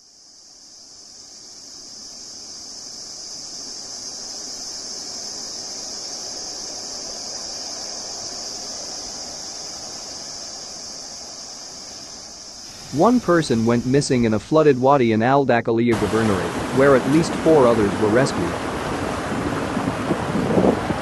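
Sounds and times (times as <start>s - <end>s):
high-pitched insect drone: 0.0s - 15.4s, 16.0s - 18.7s
low rushing noise: 5.0s - 21.0s.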